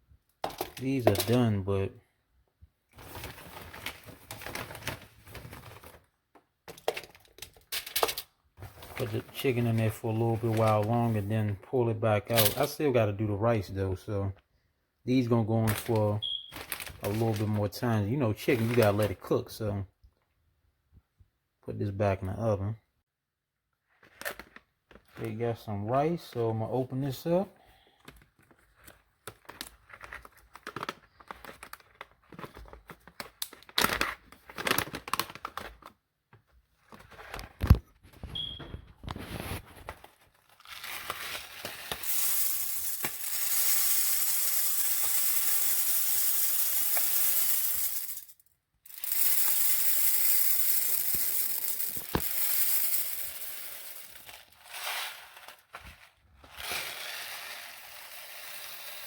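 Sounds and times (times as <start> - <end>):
plastic bag crinkling: 15.6 - 17.7, 48.9 - 57.0.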